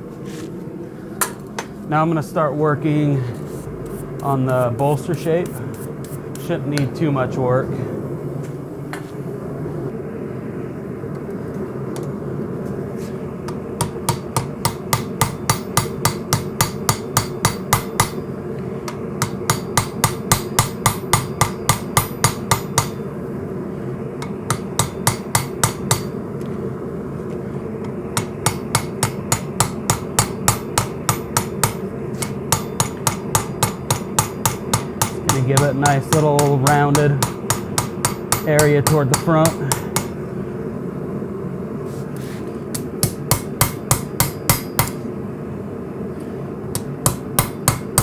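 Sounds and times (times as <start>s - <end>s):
steady rushing noise: 0.0s - 15.3s
hammer striking metal: 13.8s - 18.2s, 18.9s - 23.0s, 24.2s - 26.2s, 28.2s - 40.2s, 42.8s - 45.0s, 46.8s - 48.0s.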